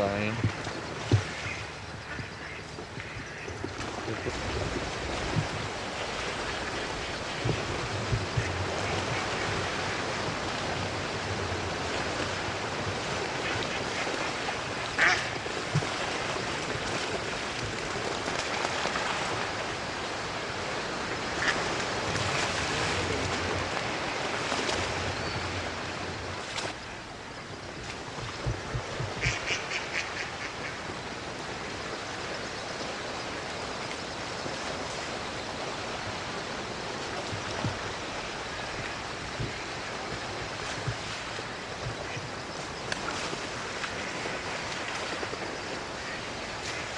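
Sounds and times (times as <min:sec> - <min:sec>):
ducks quacking: 0:01.3 - 0:04.4, 0:15.0 - 0:15.4, 0:29.2 - 0:30.8.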